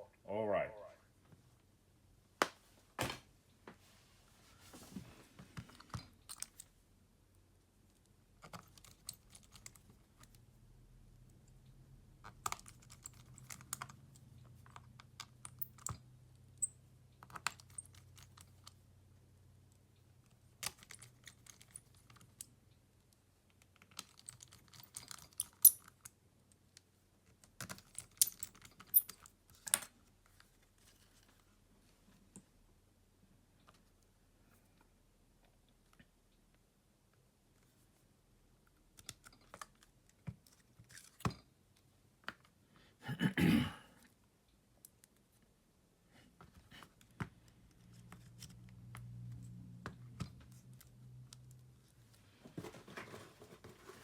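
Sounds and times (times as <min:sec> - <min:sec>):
tools and parts clicking: 0:05.8 - 0:06.7, 0:12.2 - 0:18.8, 0:23.7 - 0:26.1, 0:27.5 - 0:29.9.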